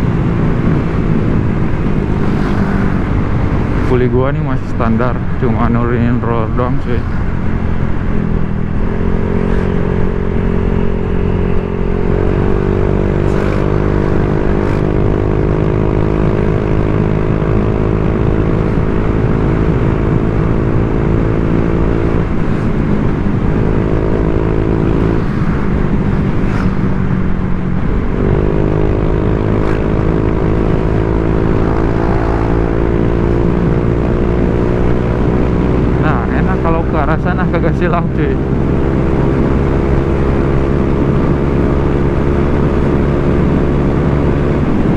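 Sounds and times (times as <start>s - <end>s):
scooter engine running: 7.3s - 37.4s.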